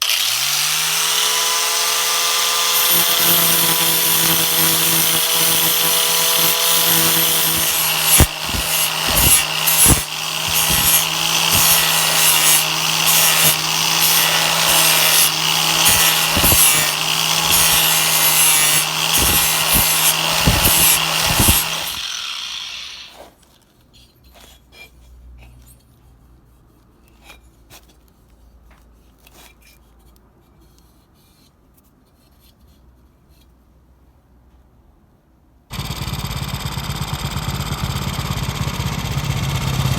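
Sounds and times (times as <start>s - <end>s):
grinder knocking on metal: 0.0s - 23.2s
power grinder grinding metal: 0.0s - 23.3s.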